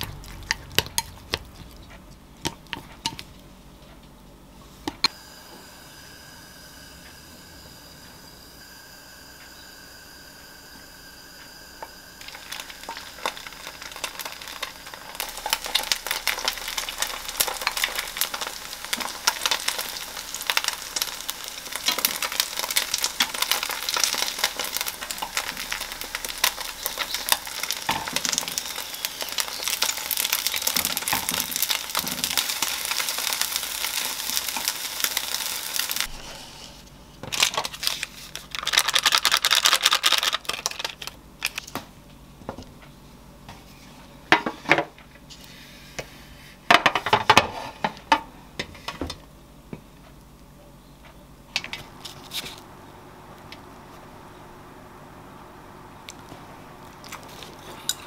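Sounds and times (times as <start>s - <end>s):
batter sizzling in a pan: 5.0s - 41.0s
plastic sachet crinkling: 37.3s - 41.7s.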